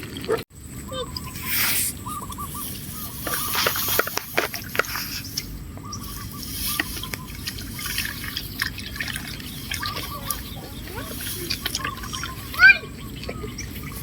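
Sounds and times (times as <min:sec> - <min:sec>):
faint short chirping call: 0:00.9 - 0:04.2
water trickling and dripping: 0:03.3 - 0:14.0
small splashes and clicks: 0:06.4 - 0:14.0.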